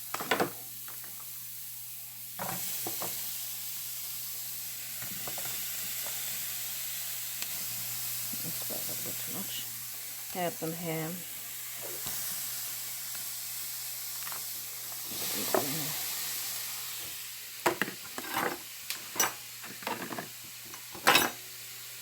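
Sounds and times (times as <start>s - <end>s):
food sizzling in a frying pan: 0.0s - 22.0s
utensil scraping a pan: 18.0s - 18.6s.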